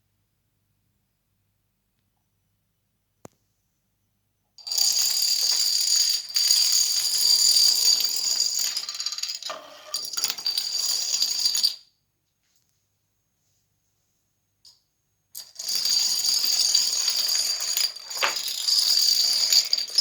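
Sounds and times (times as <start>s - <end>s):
dominoes toppling clatter: 4.6s - 11.8s, 15.4s - 20.0s.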